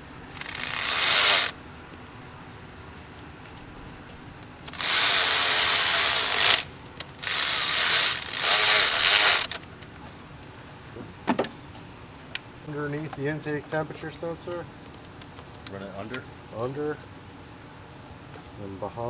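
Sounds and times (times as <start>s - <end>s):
ratchet wrench running: 0.3s - 1.6s, 4.7s - 9.8s.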